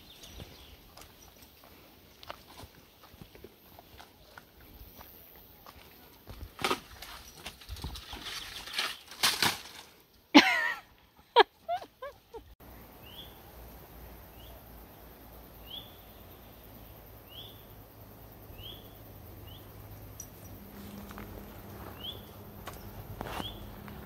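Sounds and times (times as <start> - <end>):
footsteps on forest track: 0.0 - 9.9, 20.2 - 24.0.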